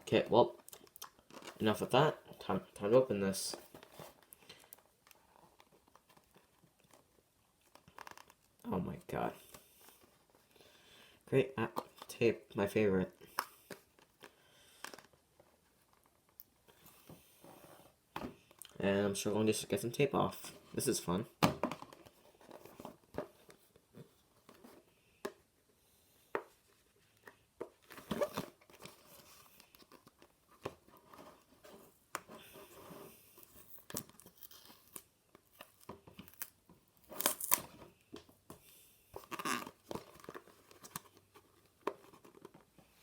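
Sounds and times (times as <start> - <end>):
packing tape tearing: 33.4 - 37.8.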